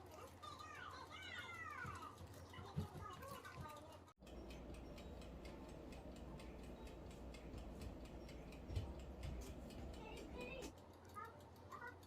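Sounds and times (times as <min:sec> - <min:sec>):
rapid mechanical ticking: 0:00.0 - 0:12.0
steady low hum: 0:04.2 - 0:10.9.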